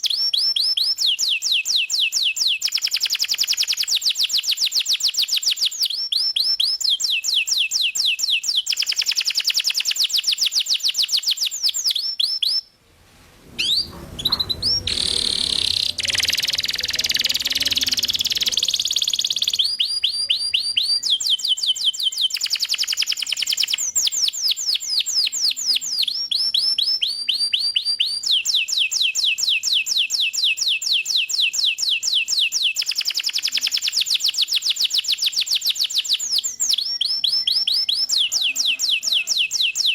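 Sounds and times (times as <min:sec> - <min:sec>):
canary singing trills: 0:13.6 - 0:29.6, 0:32.6 - 0:39.9.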